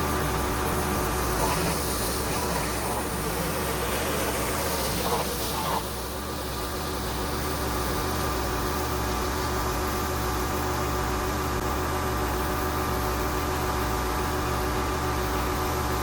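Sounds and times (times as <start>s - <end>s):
pressure washer spray hiss: 0.0s - 6.6s
pressure washer engine hum: 0.0s - 16.0s.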